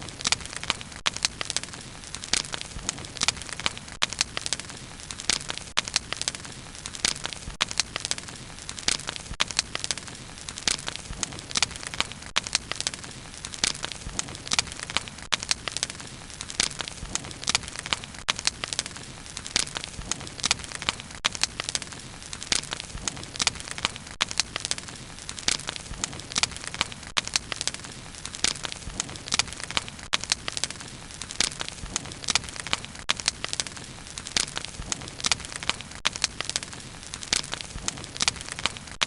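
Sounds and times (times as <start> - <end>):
bonfire crackling and popping: 0.0 - 39.0.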